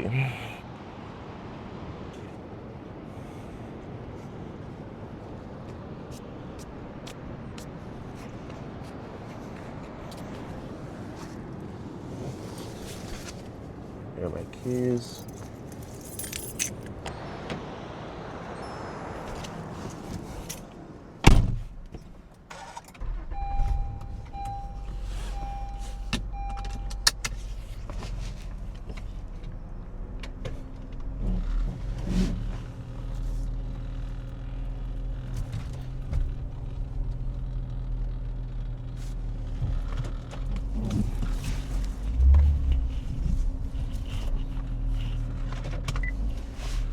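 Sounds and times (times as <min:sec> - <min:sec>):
car engine running: 0:14.3 - 0:46.9
warning chime: 0:18.4 - 0:19.3, 0:23.4 - 0:27.1
car door shutting: 0:18.6 - 0:29.1.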